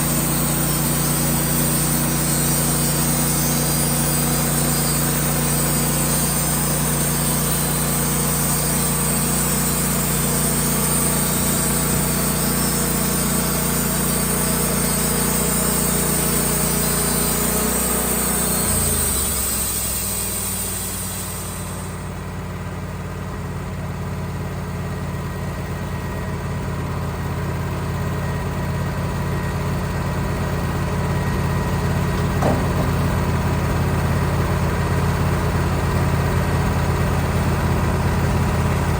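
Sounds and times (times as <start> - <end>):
saw blade cutting log: 0.0 - 22.0, 32.1 - 33.6
sawmill engine running: 0.0 - 38.9.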